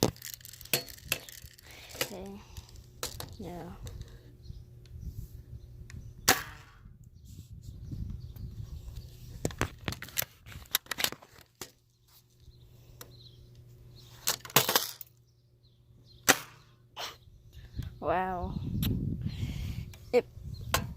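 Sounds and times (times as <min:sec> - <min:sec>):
bb gun cracks: 0:06.2 - 0:06.8, 0:16.2 - 0:16.7.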